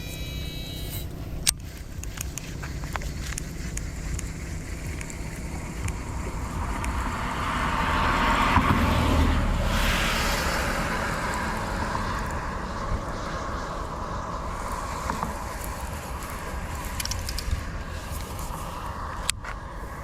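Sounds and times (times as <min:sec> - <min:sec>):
low rumble: 0:00.0 - 0:20.0
vehicle passing: 0:04.1 - 0:20.0.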